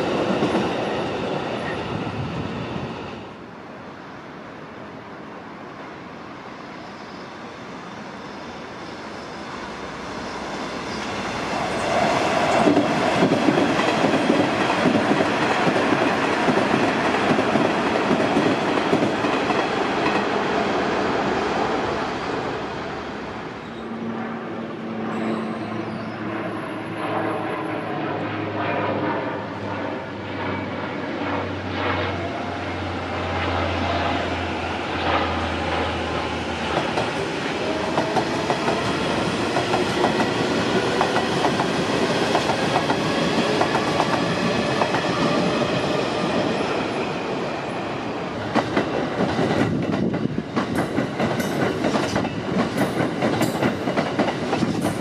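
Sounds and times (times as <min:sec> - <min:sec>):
train rumbling past: 0:00.0 - 0:55.0
clickety-clack of wheels: 0:48.5 - 0:55.0.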